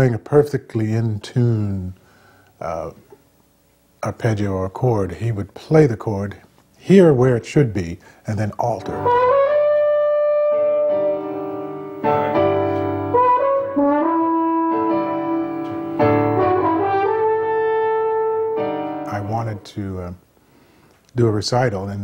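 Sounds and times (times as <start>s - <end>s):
brass horn melody: 8.8s - 19.7s
piano chords: 8.8s - 19.7s.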